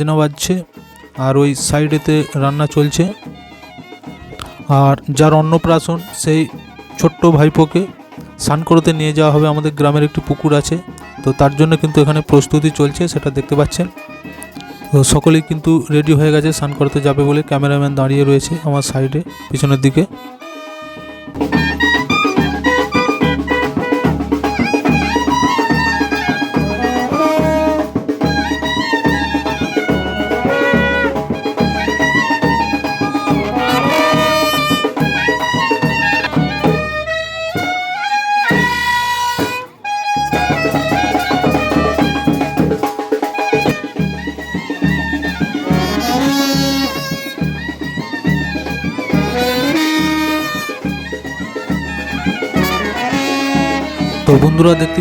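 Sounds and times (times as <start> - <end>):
melody over drum beat: 19.1 - 55.0.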